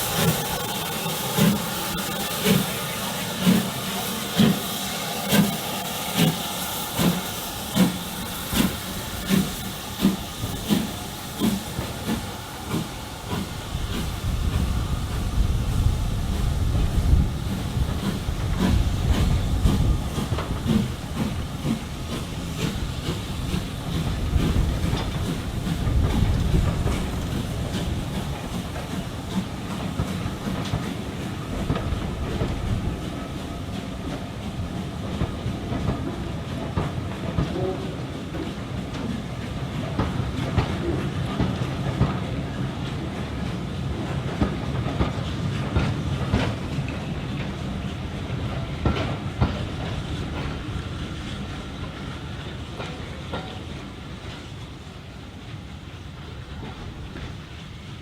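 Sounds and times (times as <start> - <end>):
hiss of steam: 0.0 - 58.0
steam locomotive chuffing: 0.0 - 58.0
train rumbling on rails: 0.0 - 58.0.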